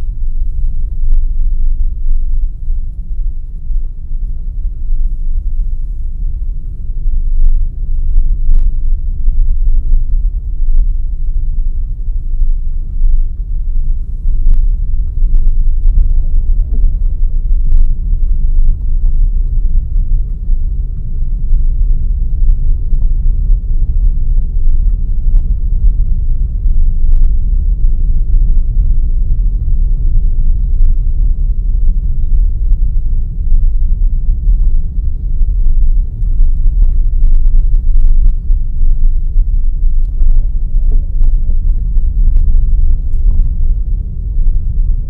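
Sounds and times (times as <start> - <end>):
car engine and road noise: 0.0 - 29.9.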